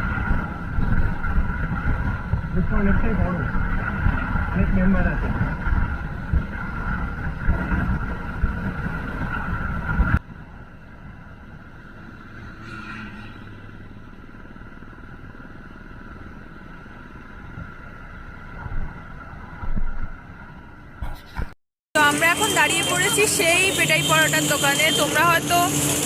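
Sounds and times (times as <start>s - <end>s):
wind on microphone: 0.0s - 10.2s
motorcycle engine: 0.0s - 20.1s, 22.0s - 26.0s.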